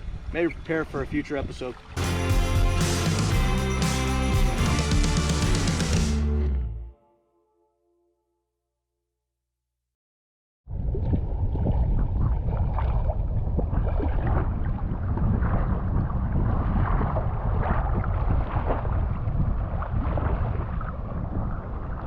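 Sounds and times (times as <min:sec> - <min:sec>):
wind buffeting microphone: 0:10.7 - 0:22.0
water lapping against kayak hull: 0:10.8 - 0:22.0.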